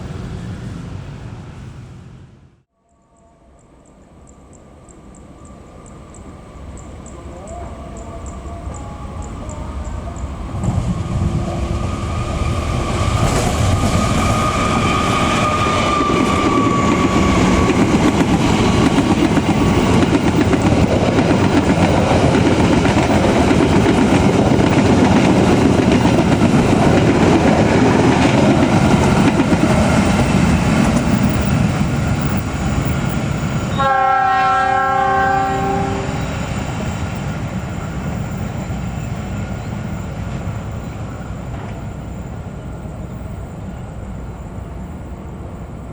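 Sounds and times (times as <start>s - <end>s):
train passing on rails: 0.0s - 45.9s
train horn: 33.7s - 36.3s.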